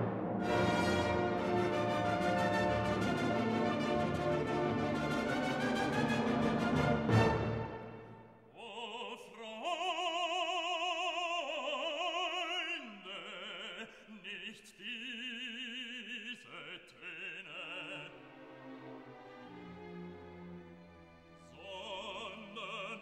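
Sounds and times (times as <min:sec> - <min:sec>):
orchestra playing: 0:00.0 - 0:08.3, 0:18.2 - 0:21.6
operatic singing: 0:00.4 - 0:19.5, 0:21.4 - 0:23.0.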